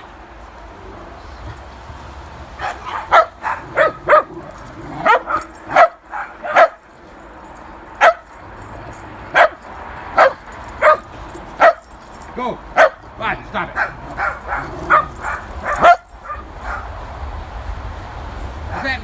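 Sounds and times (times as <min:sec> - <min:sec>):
dogs barking: 0:02.5 - 0:17.3.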